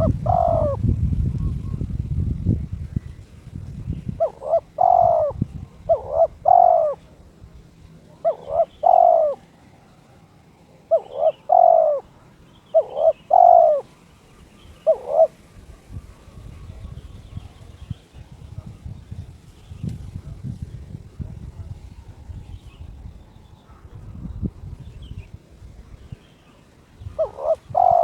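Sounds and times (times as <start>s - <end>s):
dove cooing: 0.0s - 1.9s, 4.1s - 7.2s, 8.1s - 10.1s, 10.7s - 17.7s, 26.5s - 28.0s.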